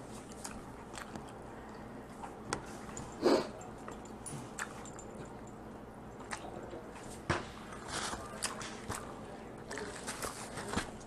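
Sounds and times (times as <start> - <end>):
crunching shell and chewing: 0.1 - 2.5.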